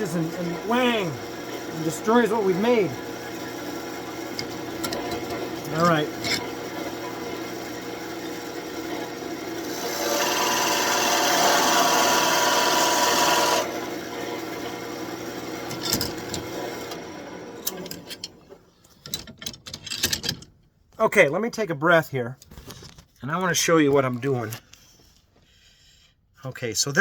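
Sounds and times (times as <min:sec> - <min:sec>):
turning tool scraping wood: 0:00.0 - 0:17.1
wood lathe running: 0:00.0 - 0:18.3.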